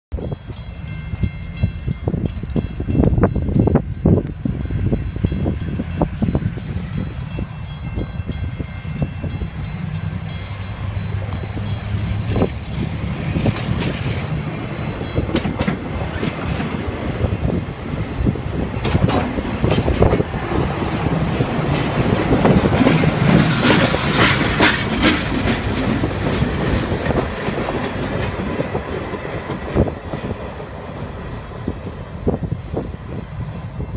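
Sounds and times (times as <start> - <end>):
diesel locomotive engine: 0.1 - 33.9
train rumble: 0.1 - 33.9
train wheels clanking over rail joints: 9.8 - 33.0.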